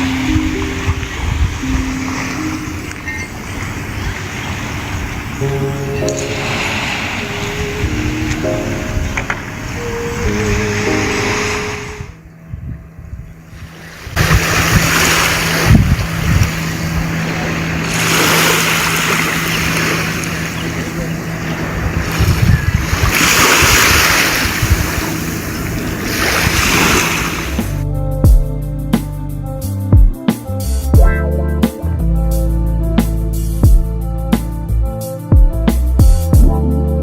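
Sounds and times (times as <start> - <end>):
surf washing in: 0.0 - 12.2, 13.4 - 27.9
wind buffeting microphone: 0.0 - 28.5
steady low drone: 0.0 - 37.0.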